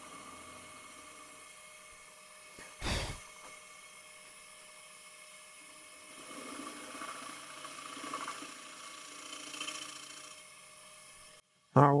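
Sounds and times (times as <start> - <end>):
vacuum suction hiss: 2.6 - 3.5.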